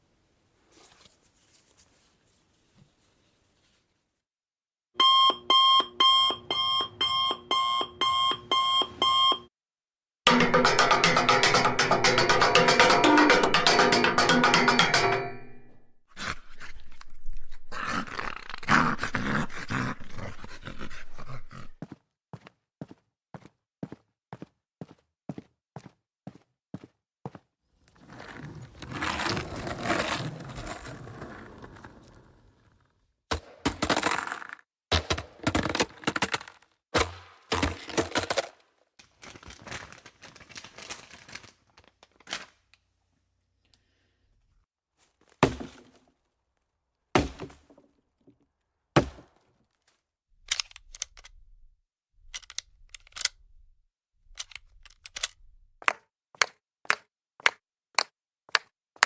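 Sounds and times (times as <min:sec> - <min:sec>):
percussive music: 0:10.3 - 0:15.7
rough dog-like animal vocalizing: 0:16.1 - 0:21.8.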